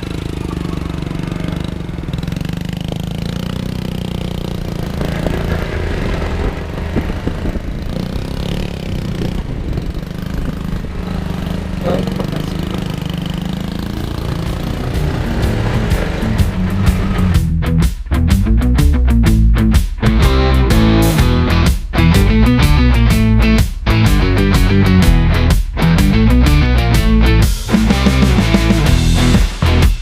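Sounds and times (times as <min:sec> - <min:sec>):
motorcycle engine rumbling: 0:00.0 - 0:30.0.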